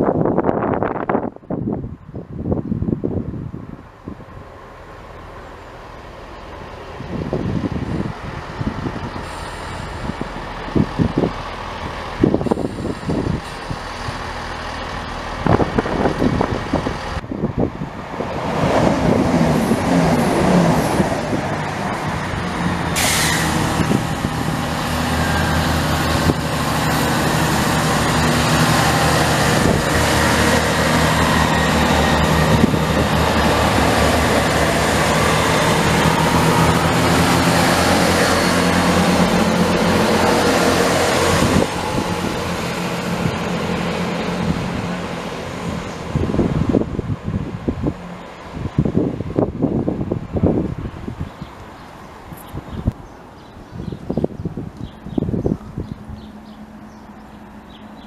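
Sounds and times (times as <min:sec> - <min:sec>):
diesel train rumbling past: 0:00.0 - 0:58.0
sudden hiss: 0:22.9 - 0:23.8.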